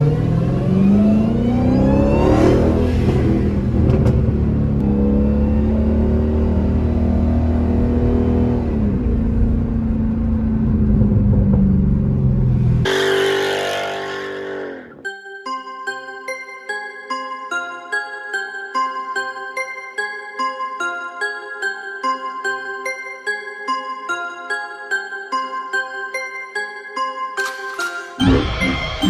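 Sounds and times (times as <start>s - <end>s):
car engine revving: 0.0s - 15.0s
music: 14.8s - 29.0s.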